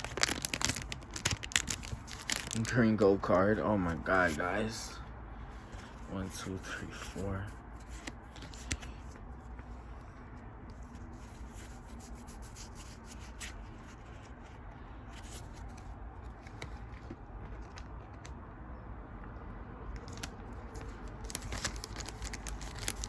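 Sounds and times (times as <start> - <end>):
low steady hum: 0.0 - 23.0
trading cards sliding and rubbing: 5.6 - 10.1.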